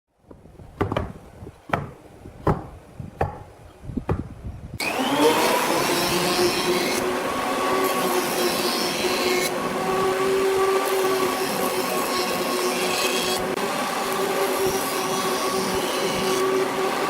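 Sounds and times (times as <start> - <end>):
electric power tool running: 4.8 - 17.0
hand tool strokes on wood: 4.8 - 17.0.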